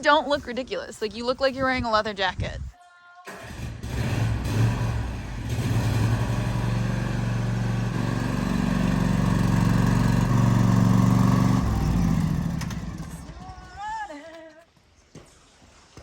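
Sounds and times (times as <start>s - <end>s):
motorcycle engine running: 3.8s - 14.0s.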